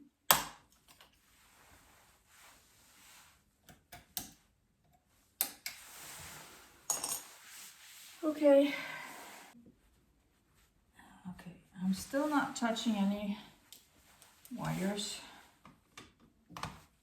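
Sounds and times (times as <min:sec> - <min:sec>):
soft rustling: 0:05.8 - 0:10.9, 0:12.0 - 0:15.6.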